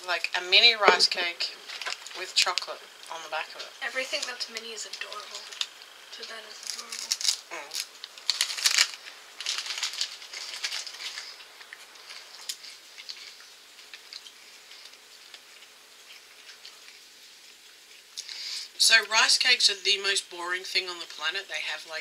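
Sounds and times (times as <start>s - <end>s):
rice cakes crunching when chewed: 5.0s - 18.6s.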